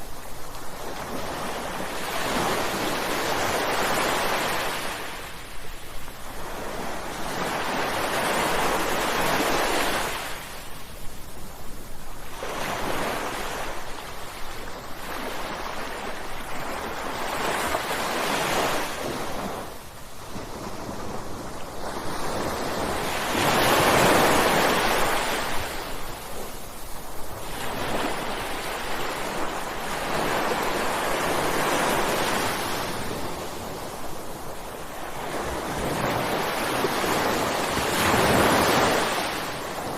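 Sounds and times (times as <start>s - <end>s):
ocean waves breaking: 12.3s - 39.9s.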